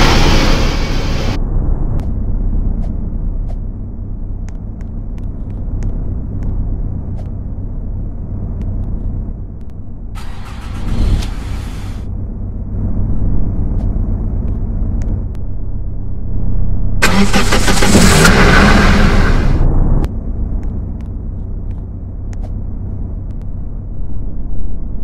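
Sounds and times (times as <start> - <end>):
engine rumbling: 0.0 - 25.0
hiss: 10.6 - 12.0
light ticks: 20.6 - 23.5.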